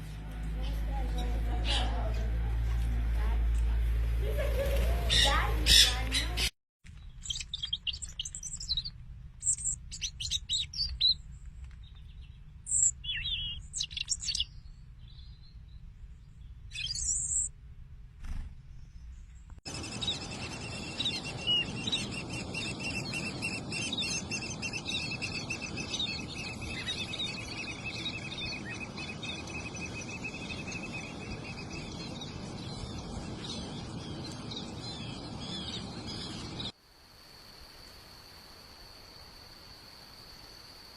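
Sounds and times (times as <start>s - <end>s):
small birds chirping: 0.4s - 17.5s, 18.2s - 36.8s.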